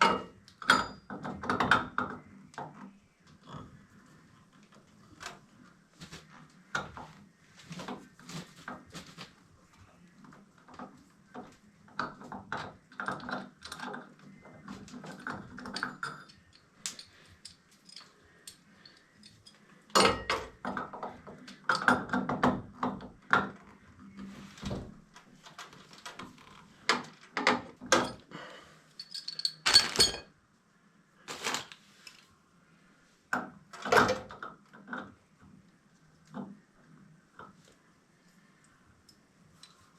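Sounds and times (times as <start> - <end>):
hard objects clinking and knocking: 29.0 - 30.3.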